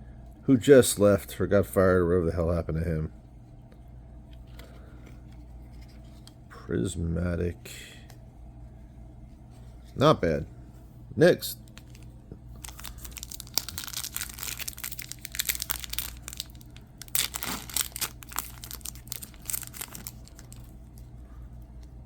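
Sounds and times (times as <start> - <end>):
plastic wrapping crinkling: 11.6 - 22.0.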